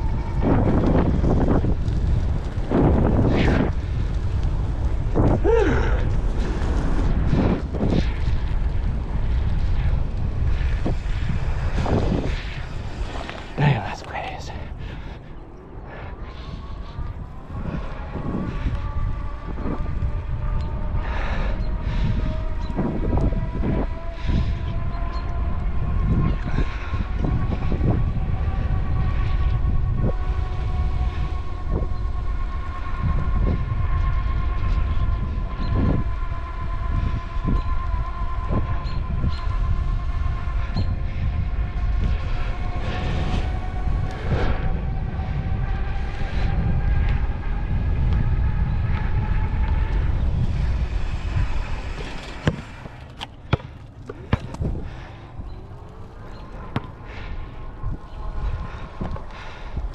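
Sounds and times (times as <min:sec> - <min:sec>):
wind on microphone: 0:00.0 - 0:59.9
electric motor whine: 0:16.1 - 0:59.6.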